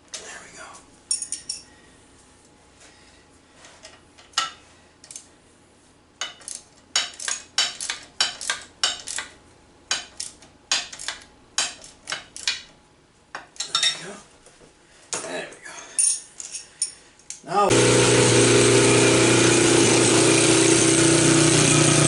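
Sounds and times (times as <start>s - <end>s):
metal tools clinking: 1.1s - 1.7s, 13.6s - 14.1s, 15.8s - 17.3s.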